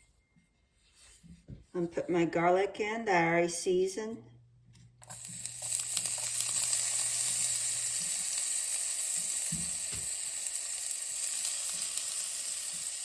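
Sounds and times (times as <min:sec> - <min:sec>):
garlic sizzling in hot oil: 0:05.0 - 0:13.0.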